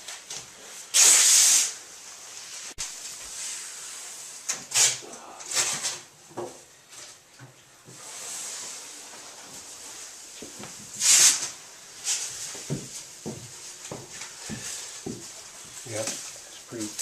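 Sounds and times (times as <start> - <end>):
short hissing bursts: 0.6 - 2.0, 3.3 - 5.7, 11.0 - 12.4.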